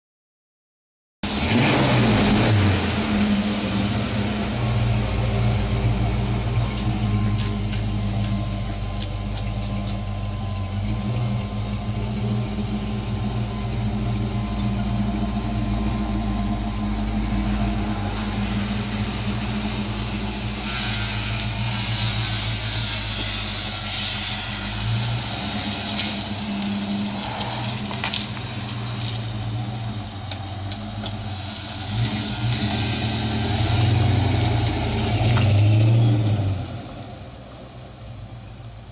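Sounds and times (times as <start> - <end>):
car engine idling: 1.2 - 38.9
hiss: 17.4 - 38.9.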